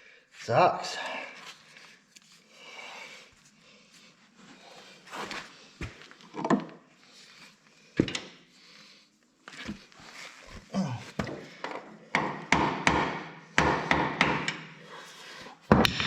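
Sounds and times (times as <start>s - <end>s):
tools knocking and clanking: 6.3s - 6.8s, 8.0s - 8.4s, 11.2s - 14.8s, 15.7s - 16.0s.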